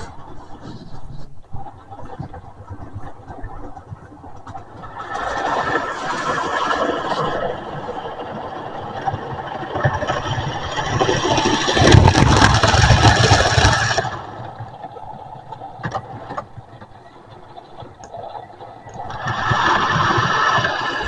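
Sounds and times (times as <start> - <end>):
model train rattling on track: 4.9 - 14.2.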